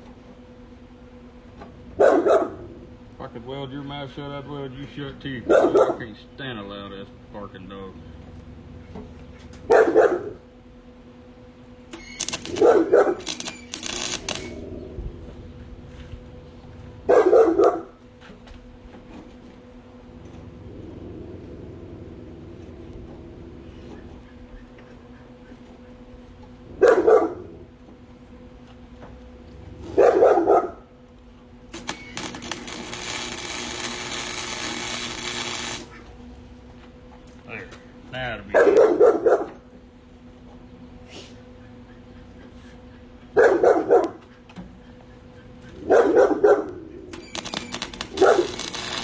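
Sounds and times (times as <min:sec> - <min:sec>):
dog barking: 0:02.0 - 0:02.7, 0:05.5 - 0:06.1, 0:09.7 - 0:10.4, 0:12.6 - 0:13.2, 0:17.1 - 0:18.0, 0:26.8 - 0:27.5, 0:29.9 - 0:30.9, 0:38.5 - 0:39.6, 0:43.3 - 0:44.2, 0:45.8 - 0:46.8, 0:48.2 - 0:48.6
welding arc hissing: 0:11.9 - 0:14.8, 0:31.7 - 0:36.0, 0:47.1 - 0:49.0
dense crackling: 0:12.2 - 0:14.7, 0:31.7 - 0:35.9, 0:47.2 - 0:49.0.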